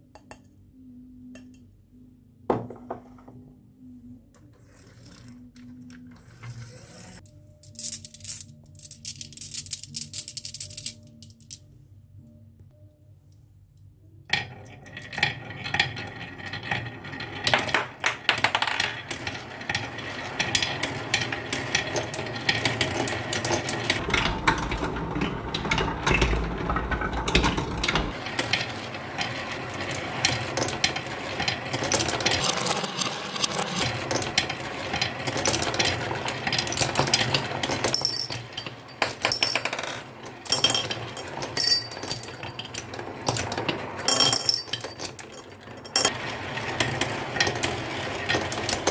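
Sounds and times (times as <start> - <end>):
marbles clattering down wooden track: 14.3 - 48.9.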